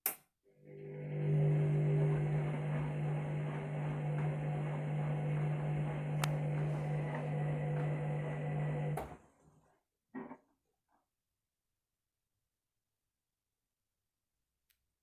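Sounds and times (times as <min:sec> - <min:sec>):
washing machine churning: 0:00.6 - 0:09.3.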